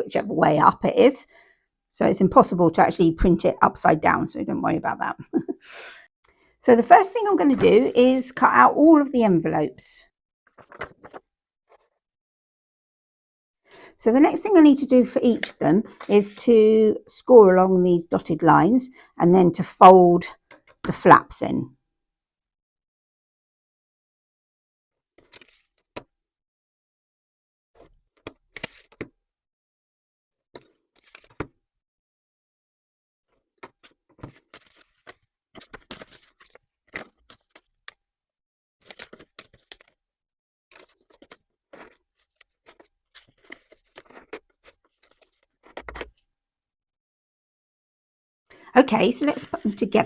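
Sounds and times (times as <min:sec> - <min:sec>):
paper scraping and crinkling: 0:10.5 - 0:12.0, 0:30.6 - 0:31.5, 0:33.4 - 0:37.8, 0:38.8 - 0:40.0, 0:40.7 - 0:46.2.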